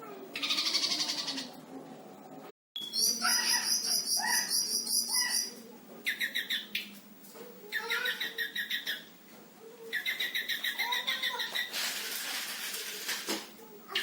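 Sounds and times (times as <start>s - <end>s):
songbird singing: 2.8s - 6.9s, 7.7s - 9.1s.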